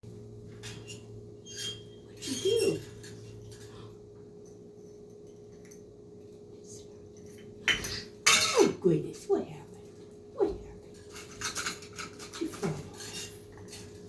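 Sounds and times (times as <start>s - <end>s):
low electrical hum: 0.0s - 14.0s
bird toys clicking and clinking: 11.0s - 14.0s.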